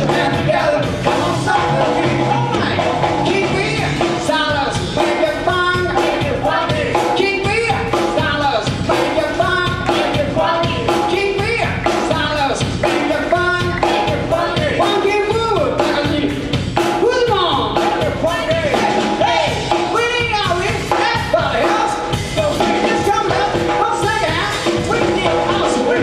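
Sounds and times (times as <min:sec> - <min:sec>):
live rock and roll band: 0:00.0 - 0:26.0
person singing: 0:00.0 - 0:26.0
steady drum beat: 0:00.0 - 0:26.0.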